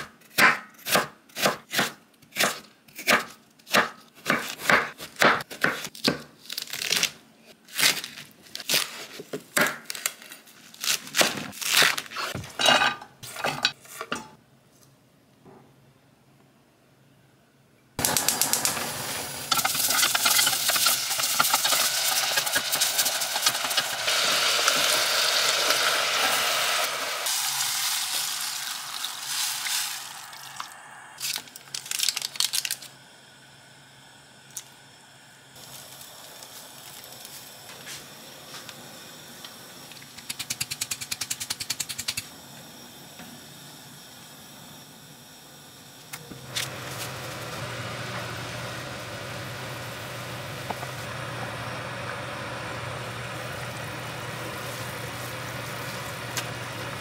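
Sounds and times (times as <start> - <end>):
food sizzling in a pot: 18.0 - 31.5, 35.6 - 40.9, 45.6 - 57.0.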